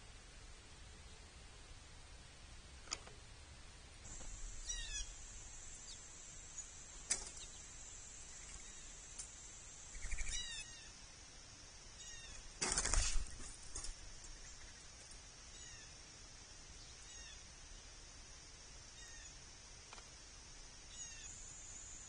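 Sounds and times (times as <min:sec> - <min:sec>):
steady high hiss: 0:00.0 - 0:22.0
birds calling in down-slurred notes: 0:04.1 - 0:11.0, 0:20.8 - 0:22.0.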